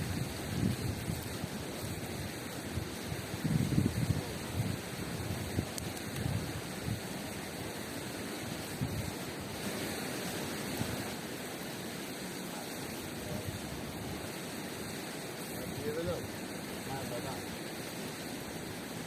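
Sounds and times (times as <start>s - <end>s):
river water rushing: 6.5s - 19.0s.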